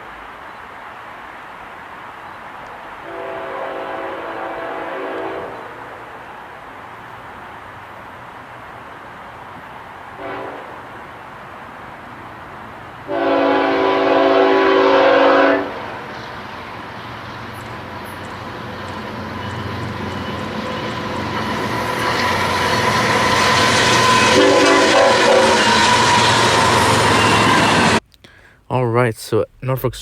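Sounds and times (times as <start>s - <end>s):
train rumble and rail clatter: 0.0s - 28.0s
locomotive air horn blast: 3.0s - 5.7s, 10.2s - 10.8s, 13.1s - 15.8s, 22.4s - 28.0s.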